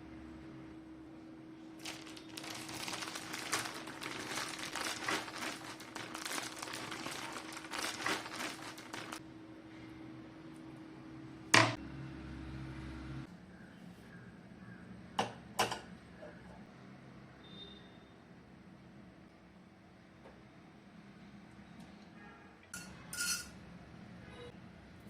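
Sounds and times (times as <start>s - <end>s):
crinkling and rustling material: 1.8s - 9.2s.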